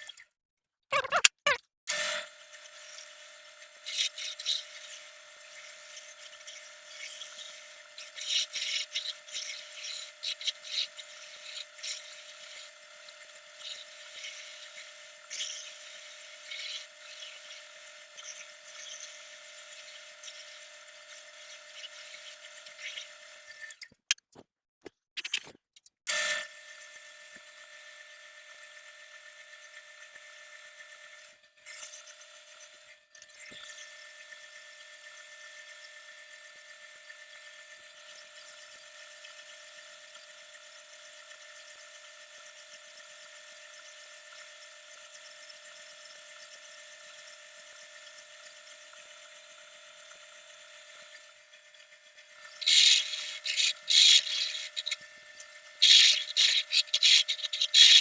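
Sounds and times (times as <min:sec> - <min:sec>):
rubbing against spinning wood: 0:52.6 - 0:55.0, 0:55.8 - 0:58.0
wood lathe whining: 0:52.6 - 0:55.0, 0:55.8 - 0:58.0.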